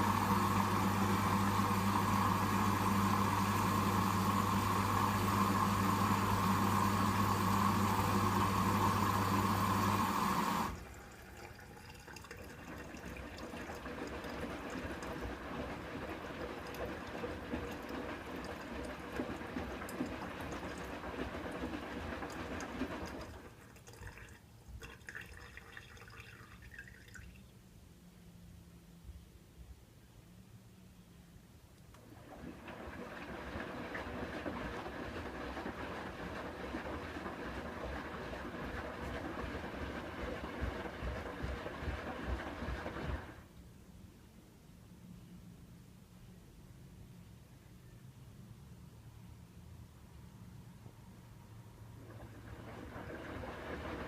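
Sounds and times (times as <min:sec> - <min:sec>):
washing machine hum: 0:00.0 - 0:27.4, 0:31.9 - 0:43.6, 0:49.6 - 0:54.0
water running into drum: 0:00.0 - 0:27.4, 0:32.0 - 0:43.4, 0:52.0 - 0:54.0
water trickling and dripping: 0:10.8 - 0:13.8, 0:23.6 - 0:27.4.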